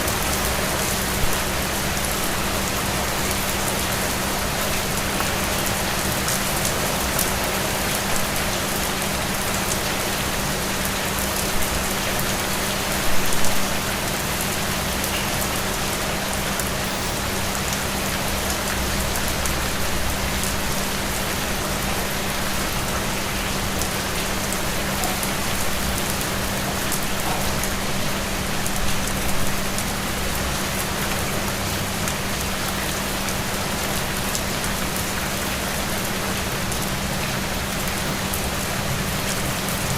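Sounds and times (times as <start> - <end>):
steady rain patter: 0.0 - 39.9.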